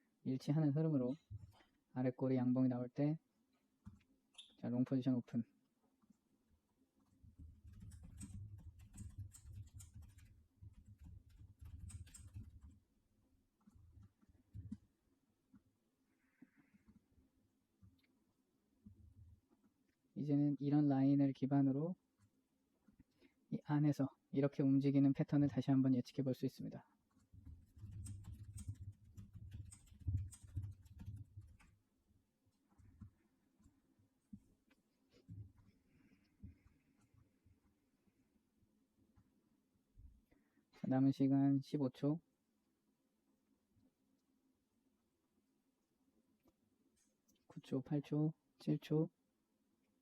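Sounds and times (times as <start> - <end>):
faint clicking and tapping: 3.5 - 4.6, 5.6 - 20.2, 22.0 - 23.5, 26.9 - 40.3
quick irregular clicks: 7.6 - 12.8, 27.2 - 31.8.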